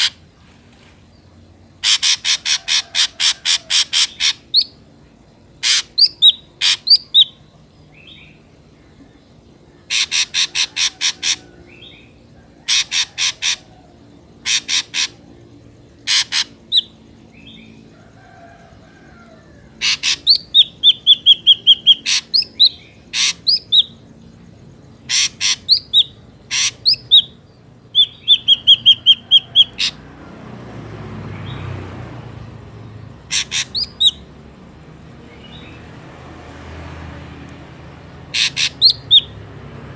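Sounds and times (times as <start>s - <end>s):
bird harsh rapid calls: 0.0s - 0.3s, 1.8s - 4.8s, 5.6s - 7.4s, 9.8s - 17.6s, 19.2s - 24.1s, 24.9s - 30.1s, 33.1s - 34.3s, 38.3s - 39.4s.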